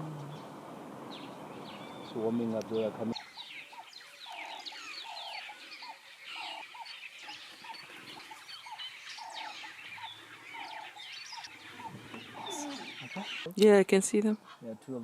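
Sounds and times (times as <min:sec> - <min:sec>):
guineafowl cackling: 0:03.7 - 0:07.0, 0:07.6 - 0:13.5.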